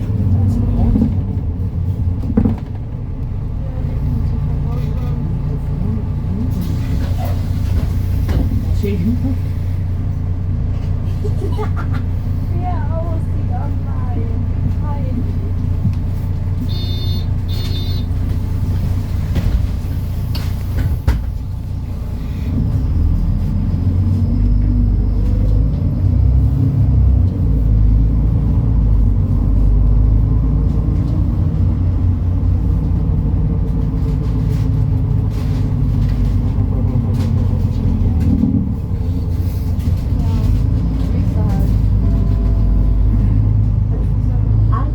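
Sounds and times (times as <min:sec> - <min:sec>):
bus diesel engine: 0:00.0 - 0:44.9
short electronic beeps: 0:16.6 - 0:18.2.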